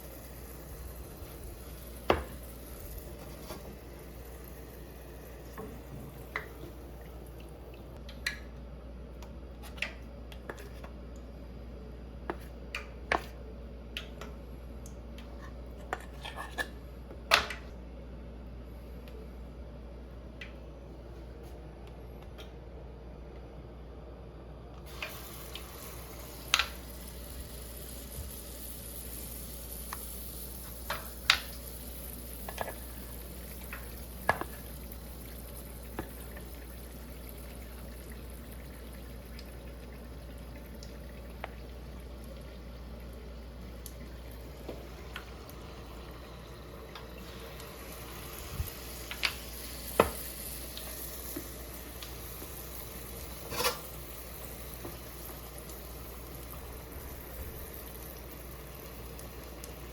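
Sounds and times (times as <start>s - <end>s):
food sizzling in a pan: 0.0s - 7.0s, 24.9s - 59.9s.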